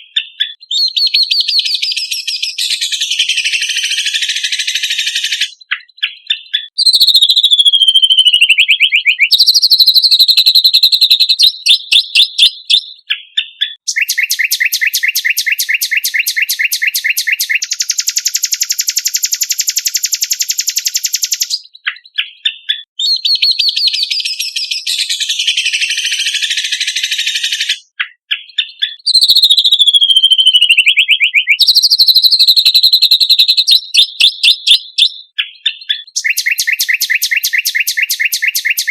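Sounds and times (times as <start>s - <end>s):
songbird chirps and trills: 0.0s - 38.9s.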